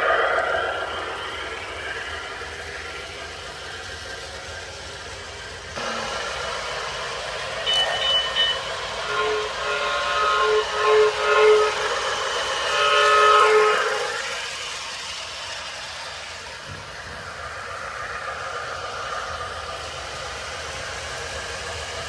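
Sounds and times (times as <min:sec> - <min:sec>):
toy train motor humming: 0:00.0 - 0:22.0
toy train horn blasts: 0:05.8 - 0:15.0.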